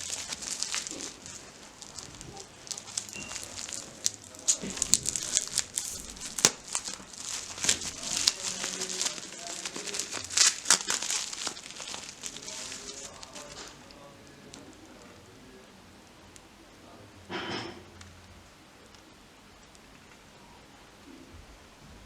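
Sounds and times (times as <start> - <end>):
wrapping crinkling and rustling: 0.0 - 15.7
sharp crackles and snaps: 0.0 - 16.8.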